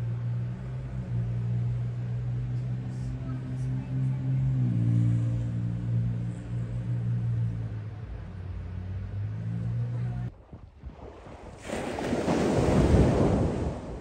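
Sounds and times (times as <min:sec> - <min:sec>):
vehicle engine idling: 0:00.0 - 0:10.3.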